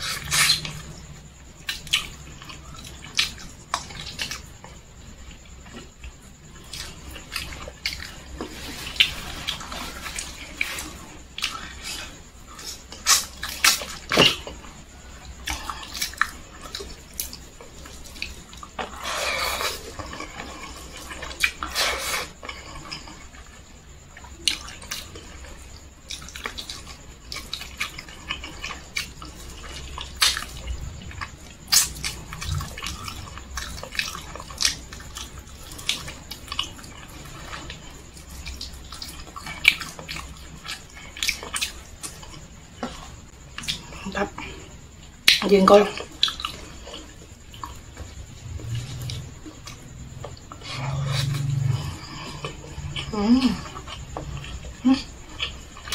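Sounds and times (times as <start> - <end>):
person chewing with lip smacks: 26.1 - 44.1.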